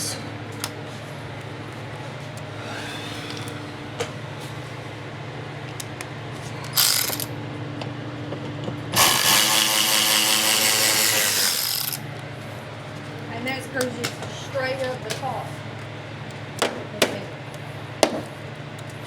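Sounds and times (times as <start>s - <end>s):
steady low hum: 0.0s - 19.0s
cordless drill running: 6.7s - 7.3s, 9.0s - 12.0s.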